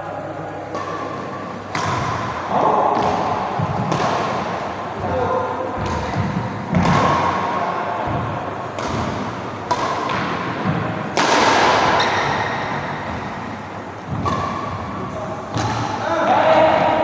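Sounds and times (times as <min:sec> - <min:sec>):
steady background noise: 0:00.0 - 0:17.0
racket hitting shuttlecock: 0:00.7 - 0:17.0.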